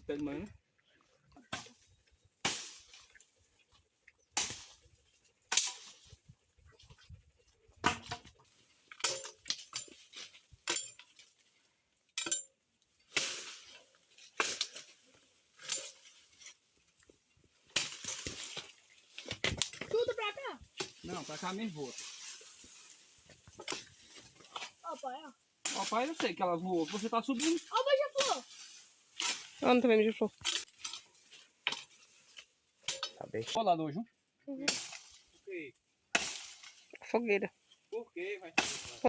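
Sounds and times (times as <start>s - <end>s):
blade chopping firewood: 5.5s - 6.0s, 7.8s - 11.1s, 13.1s - 15.0s, 17.7s - 20.1s, 20.8s - 21.2s, 23.2s - 24.8s, 25.6s - 28.4s, 36.1s - 36.8s, 38.5s - 39.0s.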